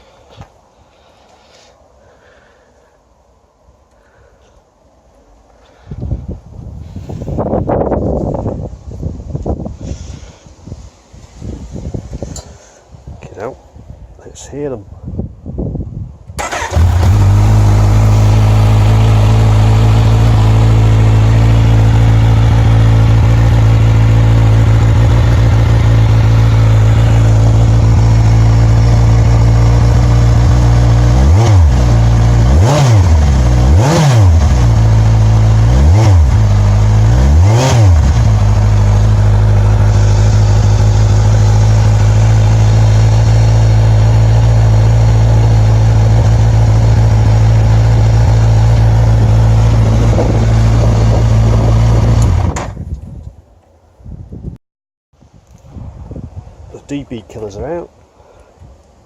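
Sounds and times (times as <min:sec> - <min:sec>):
motorcycle engine idling: 0:16.4 - 0:32.4, 0:38.0 - 0:52.2
engine throttle blips: 0:16.4 - 0:52.6.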